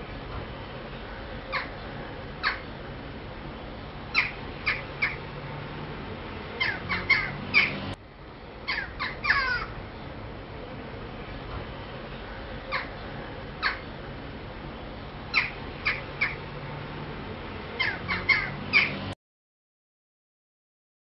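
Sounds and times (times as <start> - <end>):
crows cawing: 1.1 - 1.8, 2.4 - 2.7, 4.1 - 5.2, 6.6 - 7.8, 8.7 - 9.8, 12.2 - 13.9, 17.8 - 18.9.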